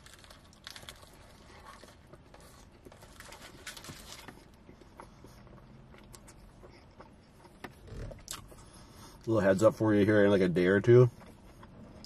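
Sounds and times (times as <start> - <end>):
wet mouth chewing sounds: 4.4 - 9.3.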